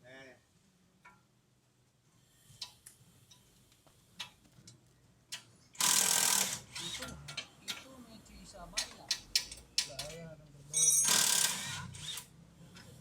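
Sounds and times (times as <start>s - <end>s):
metal tools clicking and tapping: 7.0s - 7.9s, 8.8s - 10.2s.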